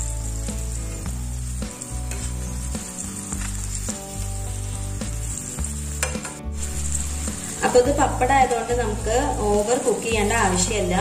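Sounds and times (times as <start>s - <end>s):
food frying in hot oil: 0.0s - 11.0s
metal spatula scraping and clinking: 1.8s - 3.9s.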